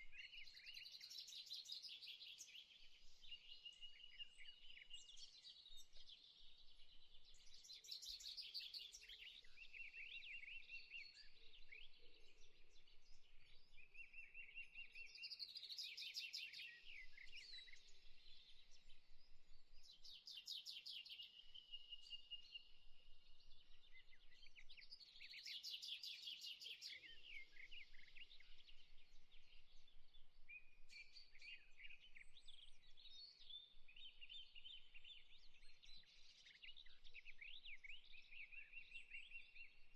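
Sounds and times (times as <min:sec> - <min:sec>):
birds singing trilled phrases: 0:19.9 - 0:39.9.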